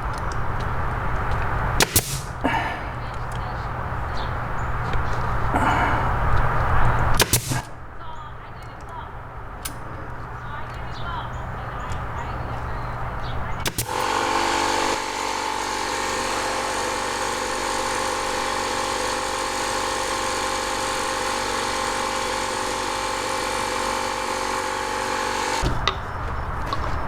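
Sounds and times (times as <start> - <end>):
electric motor whine: 0.0 - 7.8, 13.6 - 25.7
sharp taps: 0.1 - 2.4.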